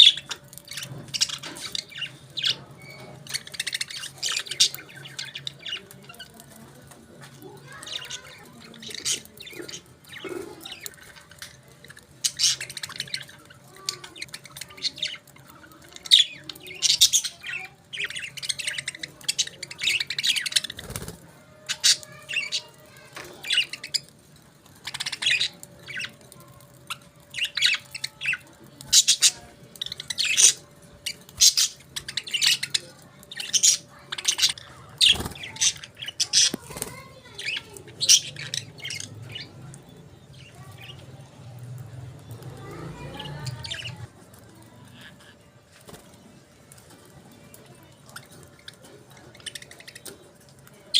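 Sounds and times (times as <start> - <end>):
budgerigars chirping: 12.2 - 13.5, 29.0 - 41.0.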